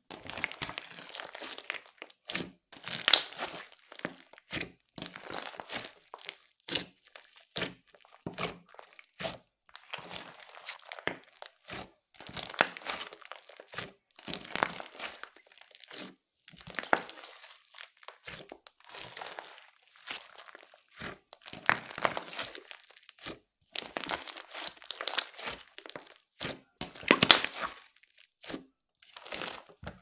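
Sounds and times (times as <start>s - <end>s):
slime sticky clicks and pops: 3.0s - 3.4s.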